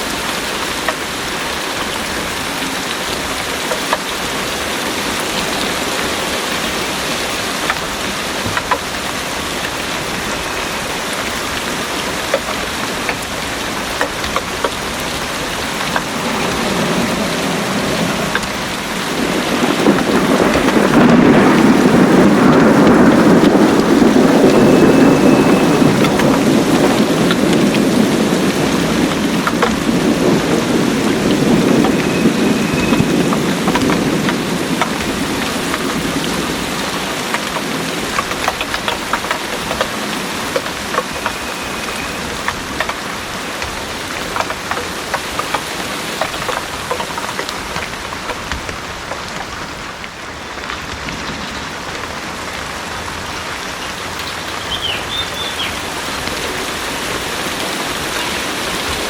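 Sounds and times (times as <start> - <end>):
heavy rain pouring: 0.0 - 59.0
thunder rumbling: 0.0 - 59.0
drops ticking on a surface: 37.3 - 41.4.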